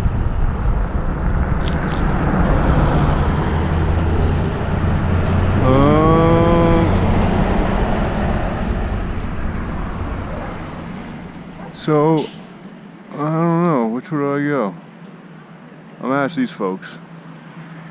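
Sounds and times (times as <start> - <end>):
vehicle engine running: 0.0 - 13.5
street traffic: 0.0 - 17.9.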